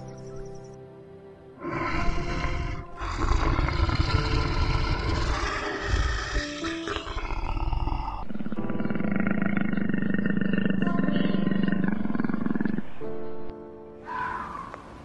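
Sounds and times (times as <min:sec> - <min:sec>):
large animal growly call: 0:01.6 - 0:13.0.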